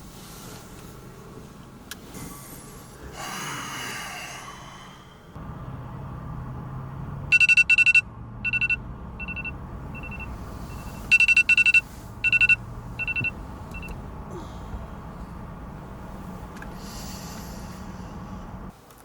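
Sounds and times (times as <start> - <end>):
rapid electronic beeping: 7.3 - 13.9.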